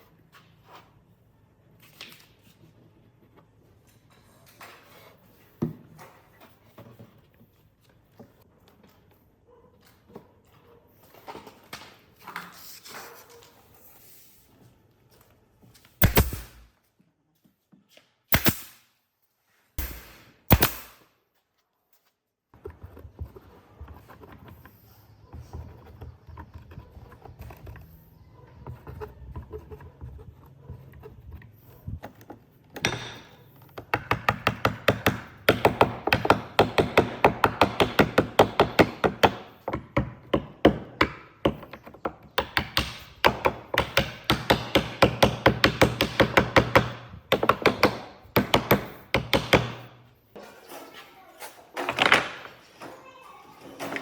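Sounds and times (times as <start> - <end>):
wood being struck: 16.0 - 16.7, 18.3 - 18.8, 19.8 - 21.0.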